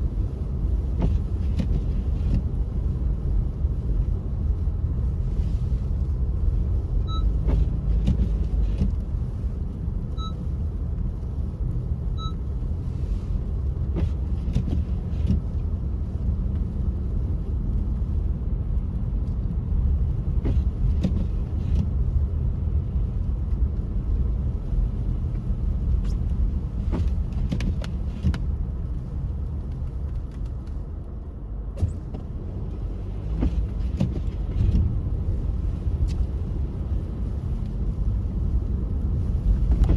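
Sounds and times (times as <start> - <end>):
engine and tyre rumble: 0.0 - 39.9.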